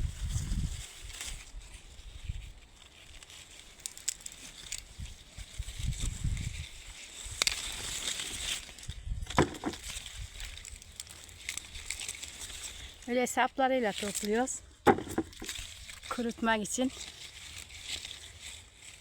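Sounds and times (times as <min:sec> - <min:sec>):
branches and leaves rustling: 0:00.0 - 0:19.0
stems snapping: 0:03.0 - 0:06.0, 0:06.6 - 0:13.1, 0:13.9 - 0:19.0.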